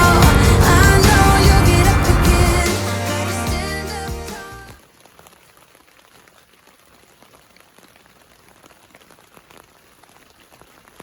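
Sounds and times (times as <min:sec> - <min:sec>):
light rain hiss: 0:04.8 - 0:11.0
raindrop ticks: 0:04.8 - 0:11.0.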